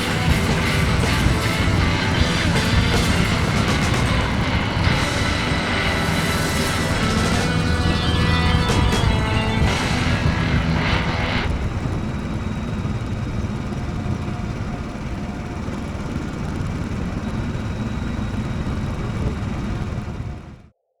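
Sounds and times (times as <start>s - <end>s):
background music: 0.0s - 11.5s
motorcycle engine rumble: 0.0s - 20.6s.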